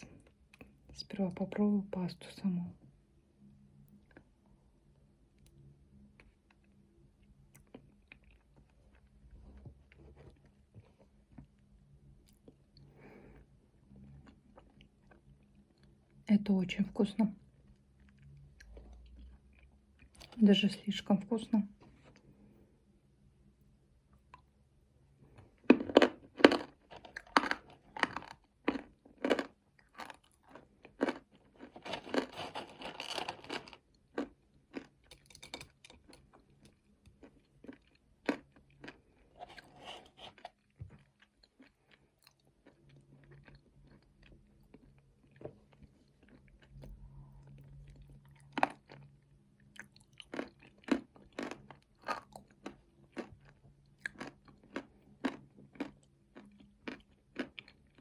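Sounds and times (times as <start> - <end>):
chewing and crunching nuts: 0.0 - 1.0, 3.8 - 4.5, 5.3 - 16.3, 17.3 - 20.6, 24.0 - 58.0.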